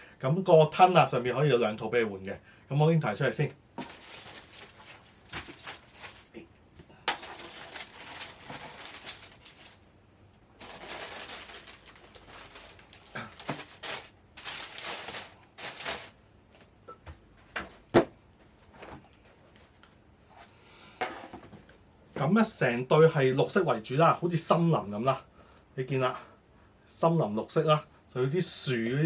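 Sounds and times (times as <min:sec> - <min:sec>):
paper or plastic rustling: 0:03.7 - 0:06.4, 0:07.1 - 0:09.9, 0:10.6 - 0:16.2.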